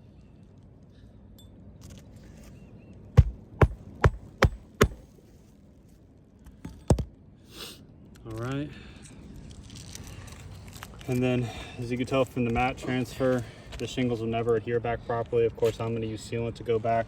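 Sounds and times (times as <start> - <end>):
hammer striking roofing nails: 3.2 - 5.1.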